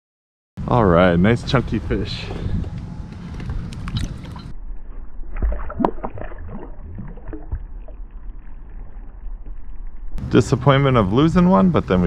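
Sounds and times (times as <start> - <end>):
water sounds: 3.8 - 10.2.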